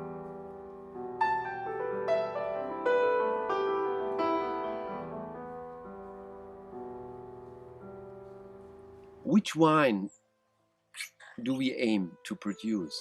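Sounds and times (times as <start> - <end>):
solo piano: 0.0 - 9.6.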